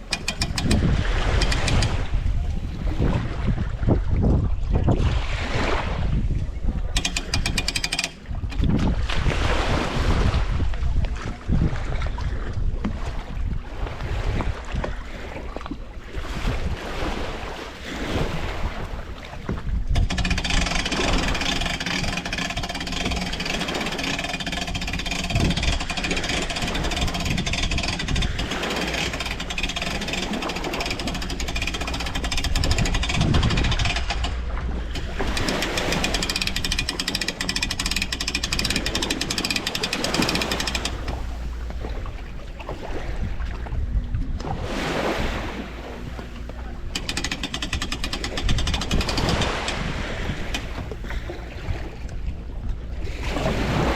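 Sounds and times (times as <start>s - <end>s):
motor running steadily: 0.0s - 3.0s, 6.8s - 9.2s, 19.0s - 44.5s, 45.3s - 53.9s
wind buffeting microphone: 0.0s - 53.9s.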